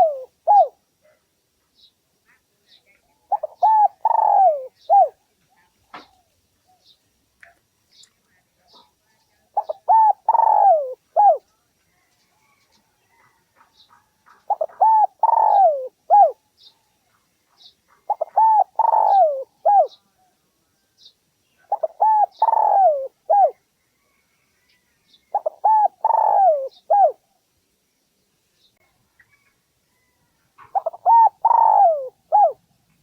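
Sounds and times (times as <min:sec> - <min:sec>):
dove cooing: 0:00.0 - 0:00.8, 0:03.3 - 0:06.8, 0:09.5 - 0:11.4, 0:14.5 - 0:16.4, 0:18.0 - 0:20.3, 0:21.6 - 0:23.6, 0:25.3 - 0:27.2, 0:30.6 - 0:32.6.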